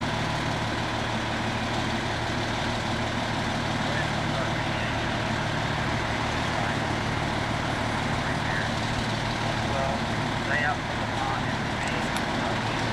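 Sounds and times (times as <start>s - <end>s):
fire engine running steadily: 0.0s - 12.9s.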